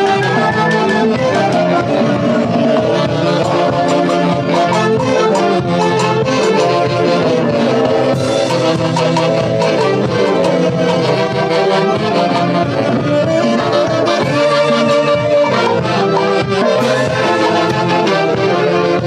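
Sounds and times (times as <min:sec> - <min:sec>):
saxophones and brass playing: 0:00.0 - 0:19.0
steady drum beat: 0:00.0 - 0:19.0.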